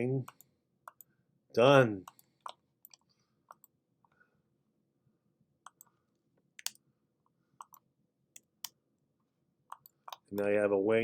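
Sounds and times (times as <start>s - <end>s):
computer mouse clicking: 0.3s - 1.1s, 2.0s - 3.8s, 5.6s - 5.9s, 6.6s - 6.8s, 7.6s - 8.8s, 9.7s - 10.5s.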